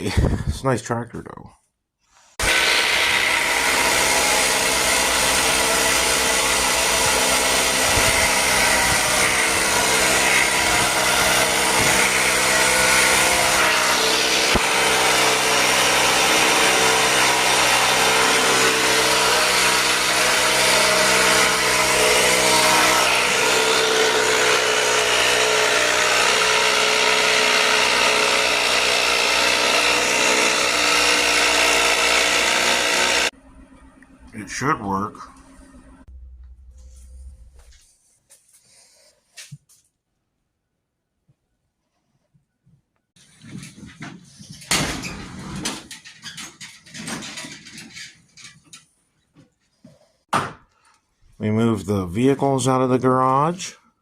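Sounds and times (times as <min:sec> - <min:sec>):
motor-driven machine humming: 0:35.2 - 0:37.8.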